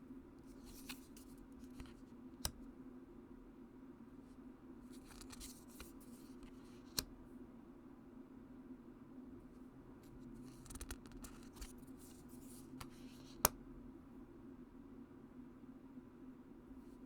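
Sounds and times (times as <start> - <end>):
cards rustling: 0.6 - 2.6, 4.9 - 7.0, 10.5 - 13.5.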